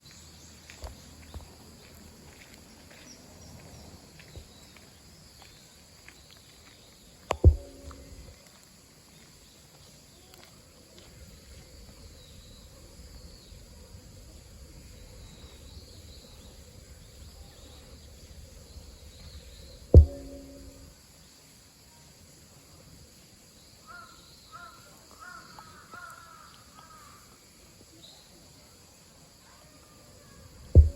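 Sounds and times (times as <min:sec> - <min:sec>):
low thud: 0:07.3 - 0:08.3, 0:19.9 - 0:20.9
sharp loud knocks: 0:07.3 - 0:08.3, 0:20.0 - 0:20.8
faint high chirps: 0:07.3 - 0:08.4, 0:14.8 - 0:20.9.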